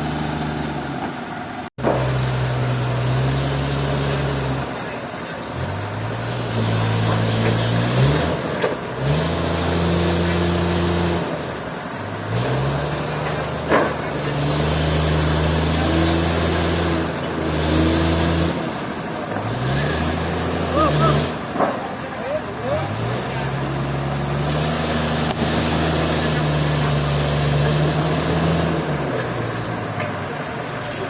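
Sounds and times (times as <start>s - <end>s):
engine running: 0.0s - 31.0s.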